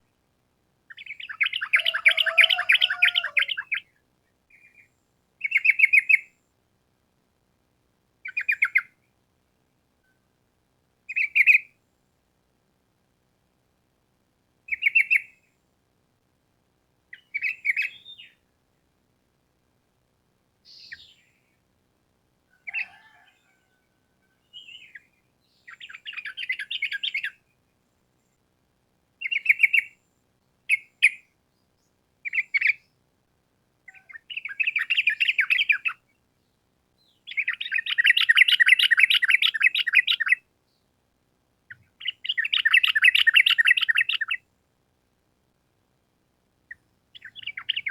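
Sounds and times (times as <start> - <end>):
bird singing bubbly chirps: 37.3 - 40.4, 42.0 - 44.4, 47.2 - 47.9.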